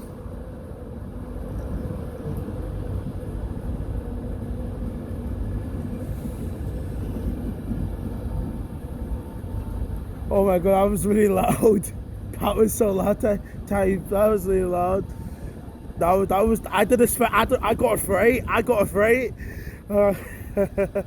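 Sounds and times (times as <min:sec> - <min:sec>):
electric train rumble: 0:00.0 - 0:21.0
faint hum: 0:00.0 - 0:21.0.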